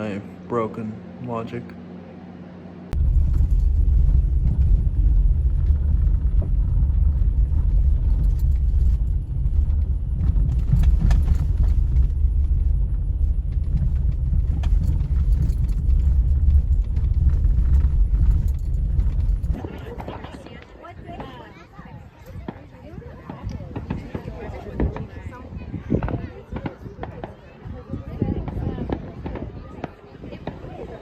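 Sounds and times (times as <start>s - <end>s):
fireworks low rumble: 2.9s - 21.4s.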